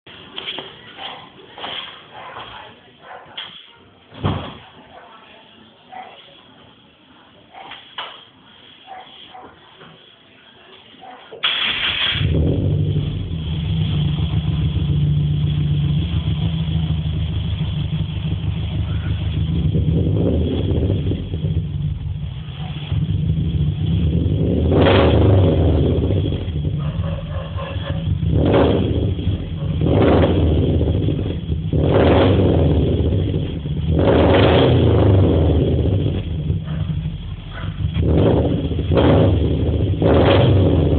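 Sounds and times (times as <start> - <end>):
engine cranking: 11.4 - 12.4
car engine idling: 11.6 - 40.9.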